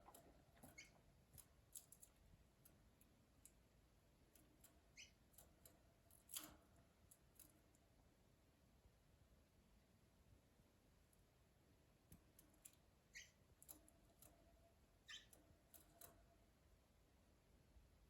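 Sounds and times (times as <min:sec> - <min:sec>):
clicks and taps in birdcage: 0:00.0 - 0:03.6, 0:04.3 - 0:07.8, 0:12.1 - 0:16.3
high bird chirps: 0:00.7 - 0:01.0, 0:04.9 - 0:05.2, 0:13.1 - 0:13.4, 0:15.1 - 0:15.4.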